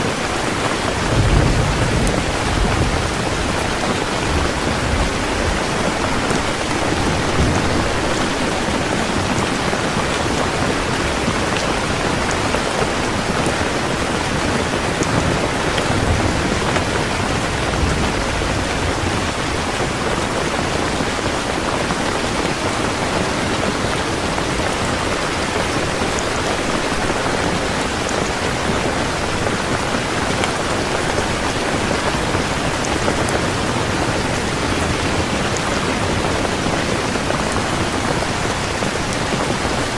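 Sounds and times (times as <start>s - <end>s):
heavy rain on a surface: 0.0s - 39.9s
low rumble of thunder: 0.9s - 9.7s, 14.3s - 20.9s.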